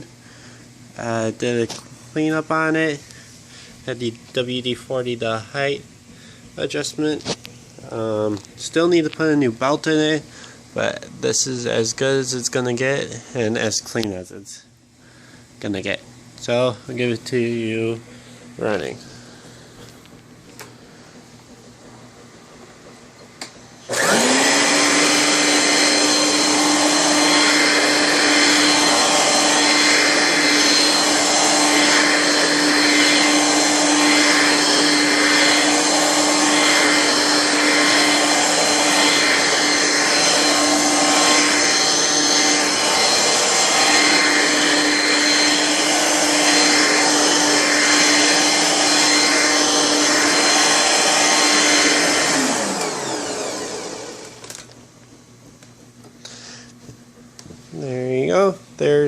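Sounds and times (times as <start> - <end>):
vacuum cleaner running: 0.0 - 58.5.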